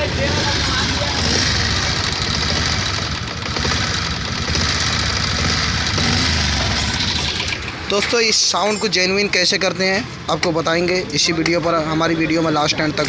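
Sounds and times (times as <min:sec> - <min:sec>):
motorcycle engine idling with ticking: 0:00.0 - 0:09.6.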